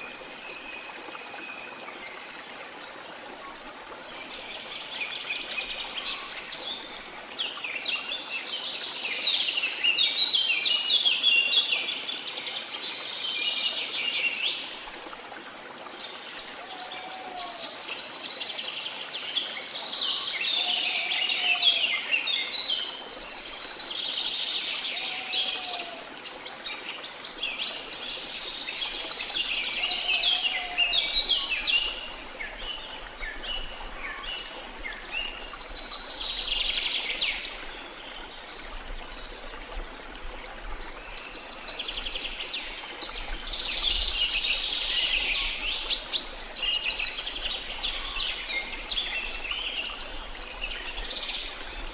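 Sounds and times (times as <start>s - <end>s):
rush of falling water: 0.0s - 51.9s
birds singing trills and chirps: 41.0s - 51.9s.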